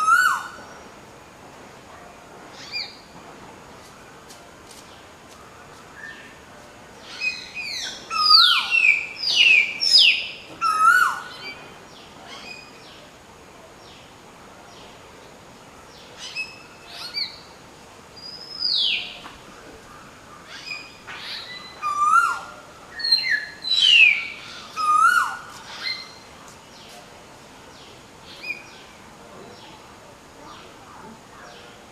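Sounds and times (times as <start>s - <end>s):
myna whistling calls: 7.1s - 11.6s, 18.2s - 19.3s, 20.5s - 26.3s.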